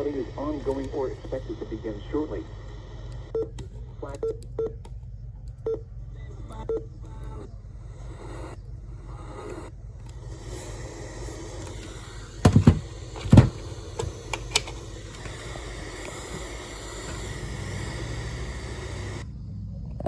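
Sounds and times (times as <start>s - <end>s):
radio static hiss: 0.0s - 4.5s, 6.0s - 19.3s.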